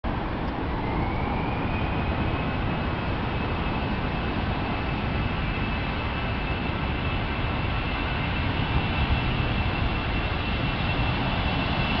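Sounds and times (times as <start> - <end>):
jet engines roaring: 0.1 - 12.0.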